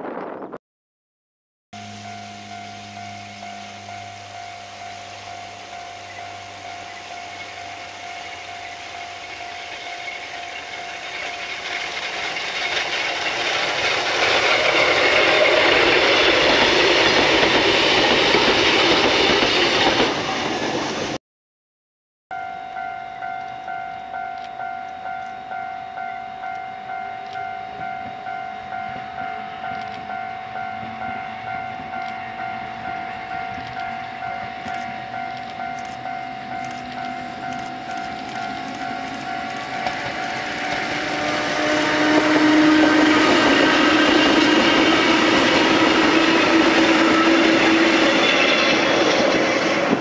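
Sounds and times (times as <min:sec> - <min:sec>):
electric train passing: 0:01.8 - 0:21.2, 0:22.4 - 0:50.0
level crossing bell ringing: 0:22.3 - 0:41.0.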